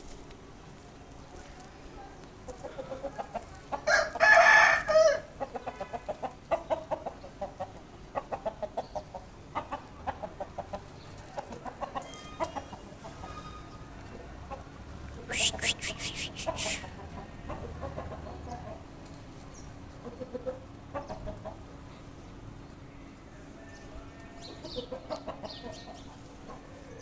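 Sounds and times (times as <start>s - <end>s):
chickens clucking: 2.2s - 4.3s, 5.2s - 13.4s, 14.0s - 27.0s
rooster crowing: 3.9s - 5.3s.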